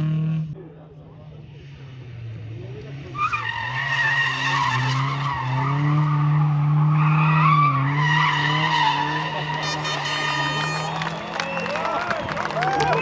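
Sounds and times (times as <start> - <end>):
car engine at high revs: 0.0 - 12.0
tyres squealing: 3.1 - 13.0.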